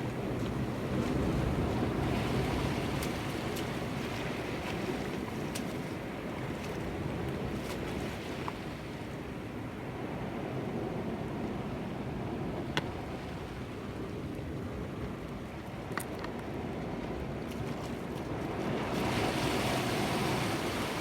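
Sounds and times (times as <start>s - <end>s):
sea waves washing against rocks: 0.0s - 8.8s, 18.3s - 21.0s.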